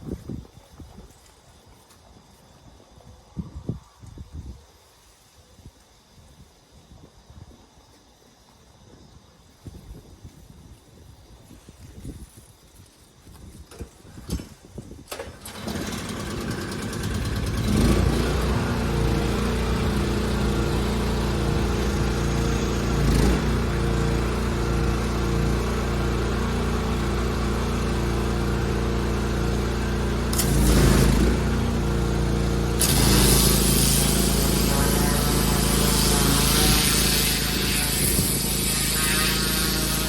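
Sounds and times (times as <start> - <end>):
pressure washer engine running: 15.4 - 40.0.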